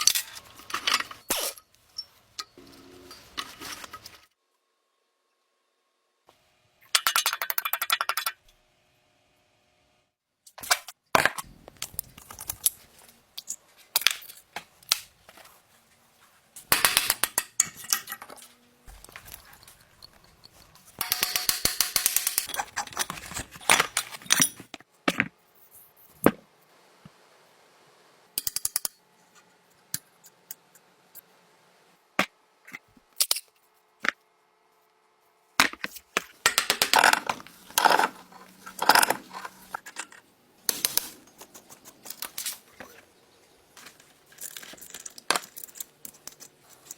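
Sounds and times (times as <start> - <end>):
metallic clicking and scraping: 16.6 - 24.8, 35.8 - 42.6, 43.8 - 46.9.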